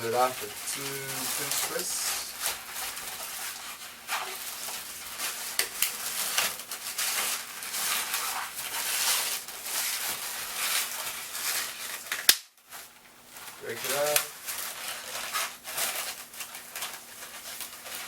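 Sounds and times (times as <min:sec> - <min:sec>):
short scratchy bursts: 0:00.0 - 0:02.7
balloons squeaking and rubbing: 0:00.0 - 0:12.2, 0:12.8 - 0:18.0.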